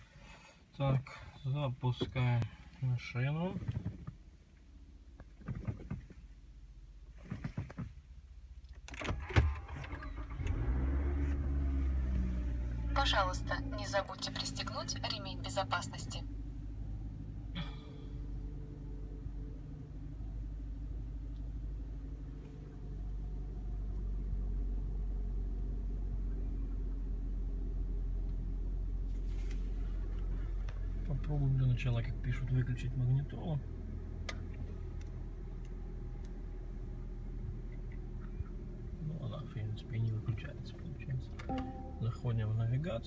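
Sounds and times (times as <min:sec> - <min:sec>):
car starter cranking: 0:08.7 - 0:12.7
car engine idling: 0:09.6 - 0:43.0.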